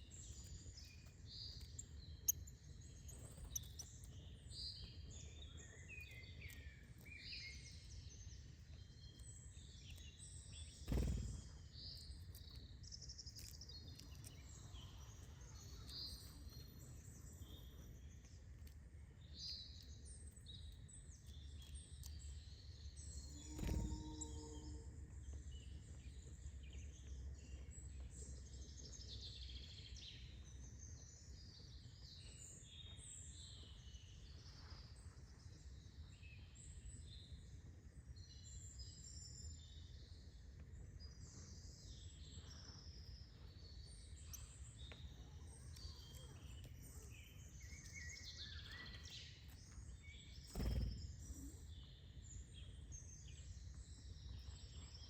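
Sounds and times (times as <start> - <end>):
birds chirping: 43.2 - 54.7.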